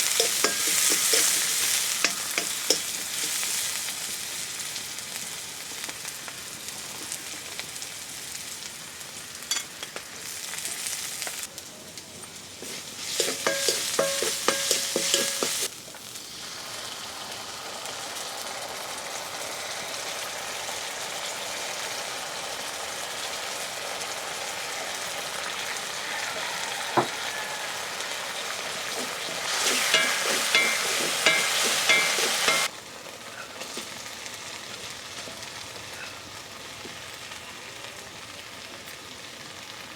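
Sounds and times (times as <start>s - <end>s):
utensil scraping a pan: 0.0s - 3.6s, 12.6s - 15.7s, 28.6s - 32.7s
chicken sizzling in hot oil: 0.0s - 39.9s.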